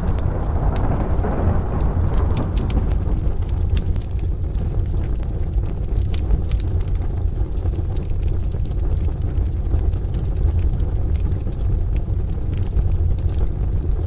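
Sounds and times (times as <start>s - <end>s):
distant thunder: 0.0s - 4.6s
rain: 0.0s - 14.0s
wood stove fire crackling: 0.0s - 14.0s.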